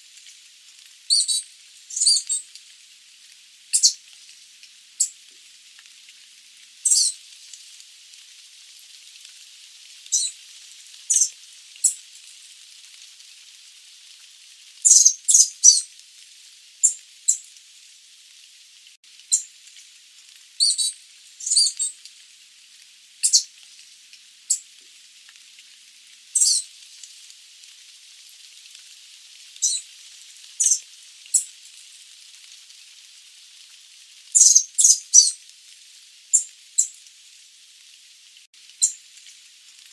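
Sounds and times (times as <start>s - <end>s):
faint steady hiss: 0.0s - 39.9s
bird giving sharp high calls: 14.9s - 15.8s, 34.4s - 35.3s.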